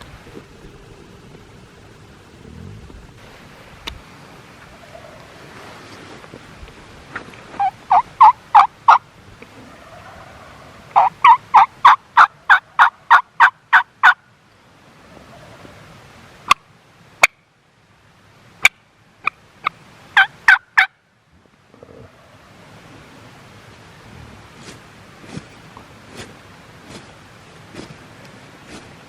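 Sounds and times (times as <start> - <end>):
turkey clucks: 4.6 - 5.3, 7.6 - 14.2, 15.1 - 15.8, 19.2 - 20.9
turkey yelping: 4.8 - 5.2, 7.6 - 9.0, 9.6 - 14.2, 20.2 - 20.9.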